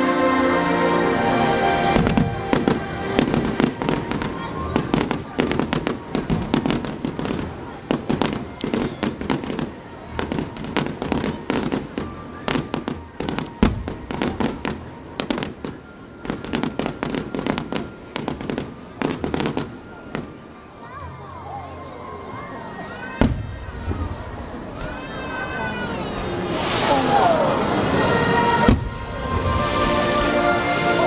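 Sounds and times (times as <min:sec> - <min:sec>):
fireworks bangs and pops: 0:02.0 - 0:20.4, 0:23.2 - 0:24.1, 0:26.6 - 0:30.4.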